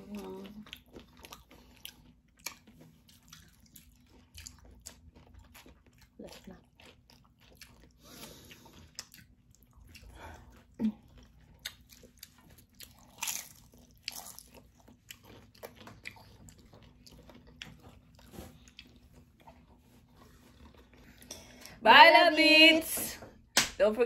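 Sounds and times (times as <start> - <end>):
crunching tortilla chips: 11.1 - 21.2.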